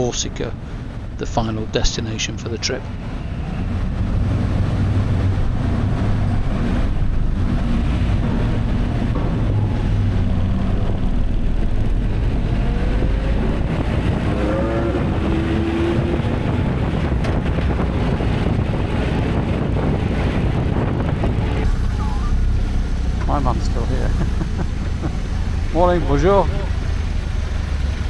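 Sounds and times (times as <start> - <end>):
vehicle engine rumble: 0.0 - 28.0
rising pitched tone: 21.6 - 27.5.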